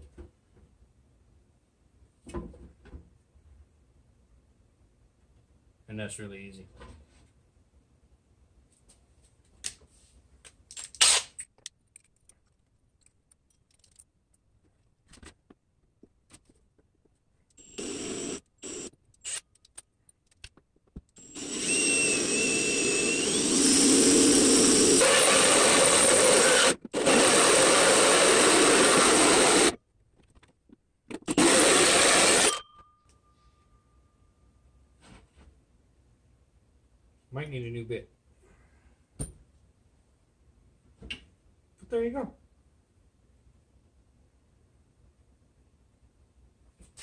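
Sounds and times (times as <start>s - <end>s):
electric drill boring through metal: 17.6s - 19.4s, 21.2s - 29.8s, 31.3s - 32.6s.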